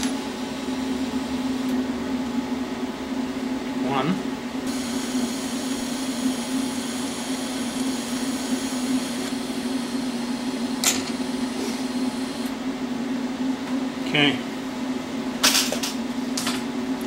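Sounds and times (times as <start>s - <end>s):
welding arc hissing: 4.7s - 12.5s.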